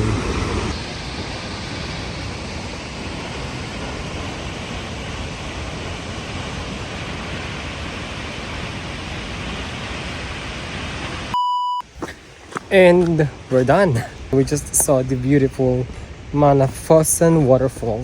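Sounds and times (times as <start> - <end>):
short electronic beep: 11.4 - 11.8
waterfall roaring: 11.9 - 18.0.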